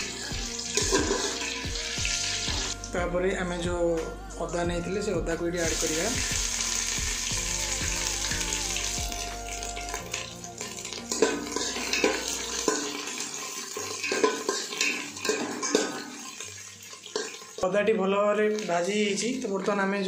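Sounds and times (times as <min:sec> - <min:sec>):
metal spatula scraping pot: 0:00.0 - 0:01.7, 0:09.9 - 0:17.6
spices sizzling in hot fat: 0:00.0 - 0:02.8, 0:05.6 - 0:17.6.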